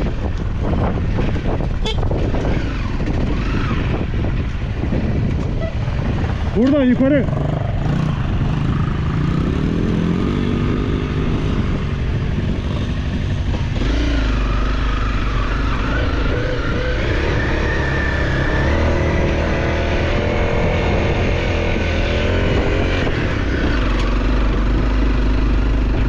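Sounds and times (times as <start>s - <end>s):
off-road vehicle engine revving: 1.2s - 4.3s, 13.6s - 26.0s.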